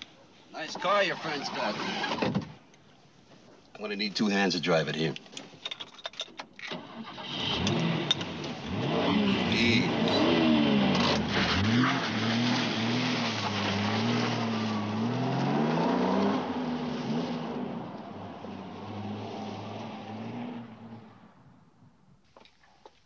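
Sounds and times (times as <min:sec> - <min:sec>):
car engine revving and accelerating: 0:07.1 - 0:21.3.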